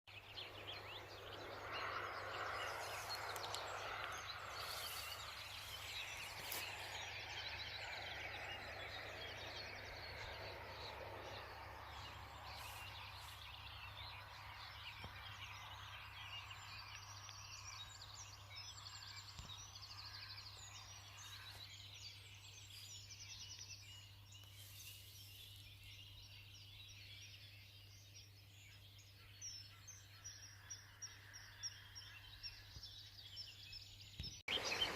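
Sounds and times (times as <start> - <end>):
birds chirping and calling: 29.0 - 34.9.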